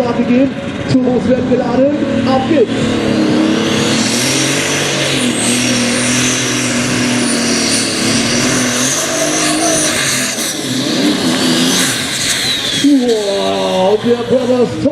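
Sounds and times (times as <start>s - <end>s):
high turbo whine: 0.0s - 14.9s
tractor engine at full throttle: 0.0s - 14.9s.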